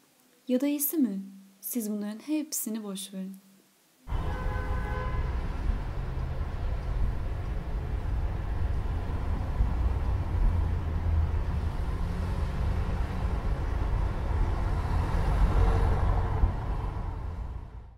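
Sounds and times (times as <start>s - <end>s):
low mechanical rumble: 5.2s - 17.9s.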